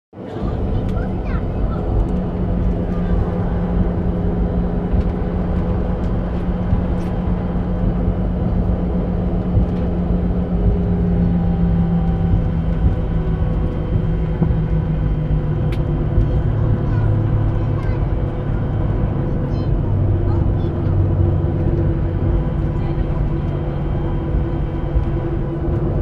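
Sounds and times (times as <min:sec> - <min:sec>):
jet engines droning at low power: 0:00.2 - 0:26.0
low hum: 0:00.2 - 0:26.0.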